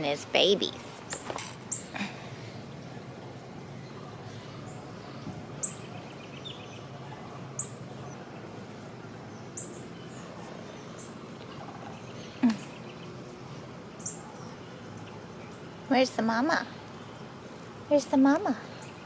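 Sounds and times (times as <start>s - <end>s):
faint low hum: 0.0s - 19.0s
bird chirping: 2.7s - 15.8s.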